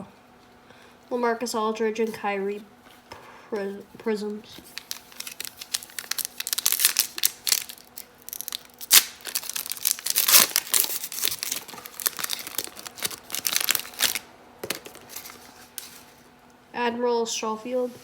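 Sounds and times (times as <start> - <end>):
plastic wrapper tearing and crinkling: 4.5 - 16.2.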